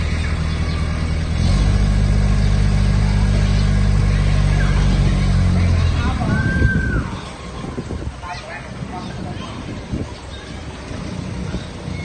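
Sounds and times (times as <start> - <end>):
forklift diesel engine running: 0.0 - 8.2.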